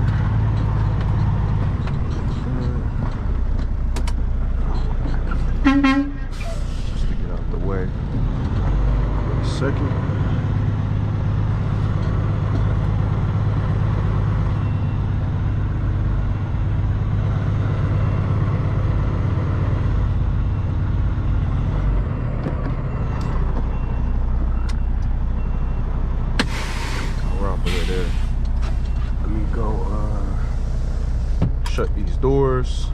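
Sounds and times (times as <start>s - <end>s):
truck diesel engine idling: 23.7s - 32.9s.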